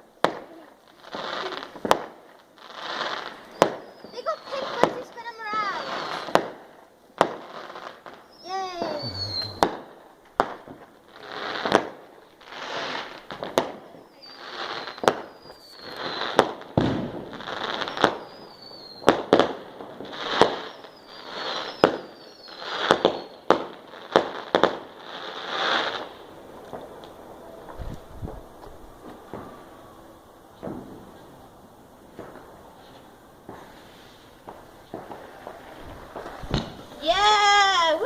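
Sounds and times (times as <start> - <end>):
firework bangs: 0.0 - 38.0
firework fizzing: 0.0 - 38.0
firework falling whistles: 3.3 - 6.4, 8.2 - 10.0, 14.1 - 19.5, 20.2 - 23.7, 27.6 - 31.4, 32.1 - 37.5.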